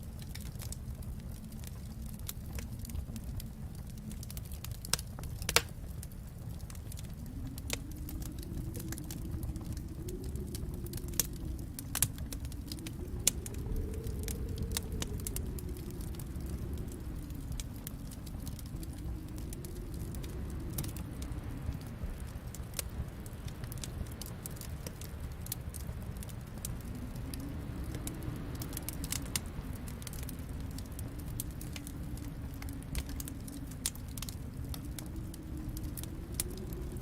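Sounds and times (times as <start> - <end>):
low rumble: 0.0 - 37.0
wood fire crackling: 0.0 - 37.0
sharp pops of fire: 4.9 - 5.7.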